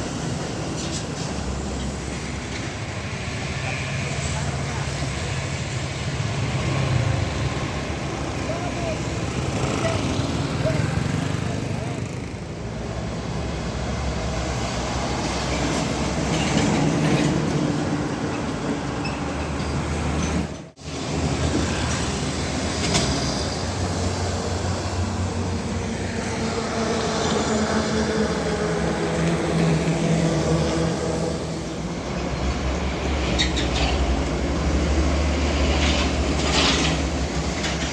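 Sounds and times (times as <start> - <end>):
heavy diesel trucks passing: 0.0 - 37.9.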